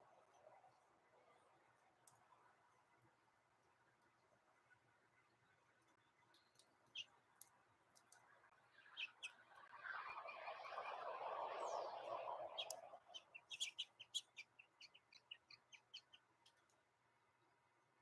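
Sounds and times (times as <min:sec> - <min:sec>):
faint rushing noise: 0:08.8 - 0:13.8.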